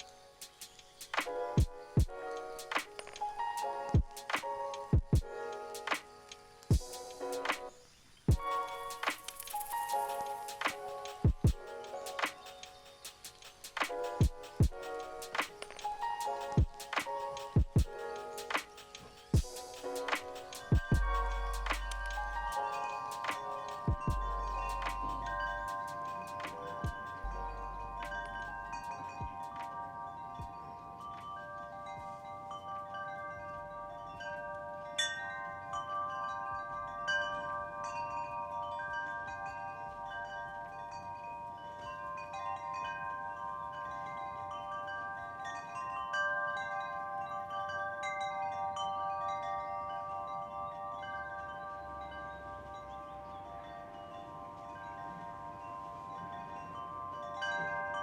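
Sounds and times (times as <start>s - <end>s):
wind chimes ringing: 0.0s - 58.0s.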